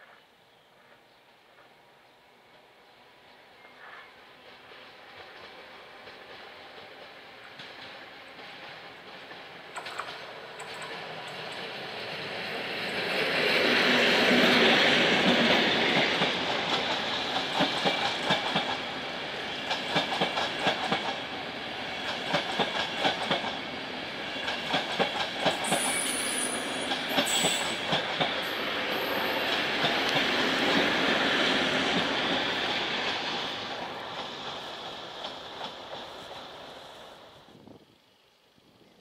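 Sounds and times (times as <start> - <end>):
wheels clacking over rail joints: 4.7 - 11.8
high wheel squeals: 25.6 - 27.9.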